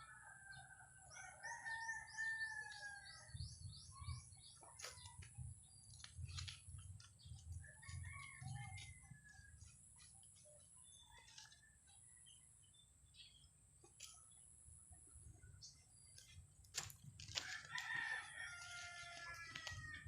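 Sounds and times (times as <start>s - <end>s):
rooster crowing: 0.0s - 3.1s, 17.4s - 20.0s
small birds chirping: 1.1s - 16.7s.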